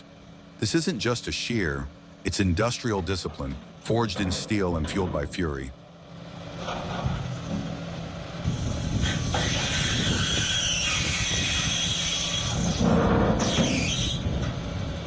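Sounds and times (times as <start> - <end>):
low machine rumble: 0.0 - 15.0
metal grinding and screeching: 9.0 - 14.6.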